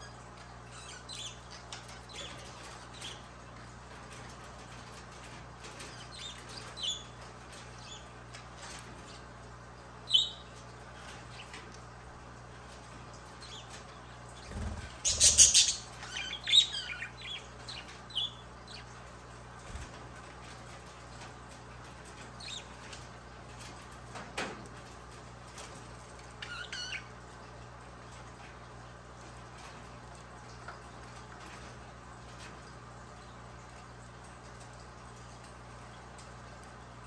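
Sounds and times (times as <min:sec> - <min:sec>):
budgies chirping: 0:10.0 - 0:11.6, 0:14.4 - 0:18.9, 0:26.4 - 0:27.1.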